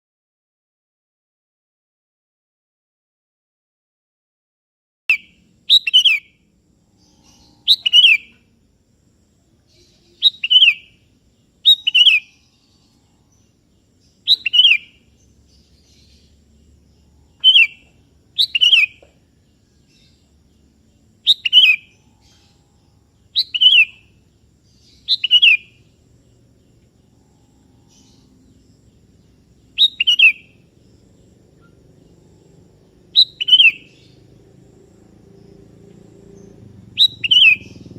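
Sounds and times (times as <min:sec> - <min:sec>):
bird singing short bright phrases: 0:05.1 - 0:06.4, 0:07.0 - 0:08.6, 0:09.6 - 0:26.4, 0:27.8 - 0:32.5, 0:33.1 - 0:34.3, 0:36.3 - 0:37.9.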